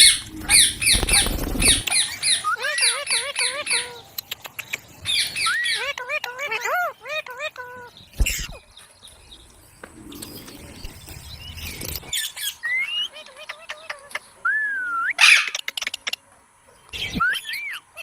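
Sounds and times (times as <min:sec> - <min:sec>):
parrot squawk: 0:00.0 - 0:04.0, 0:15.2 - 0:15.6
parrots chirping and whistling: 0:00.0 - 0:04.0, 0:05.0 - 0:07.2, 0:10.1 - 0:15.7.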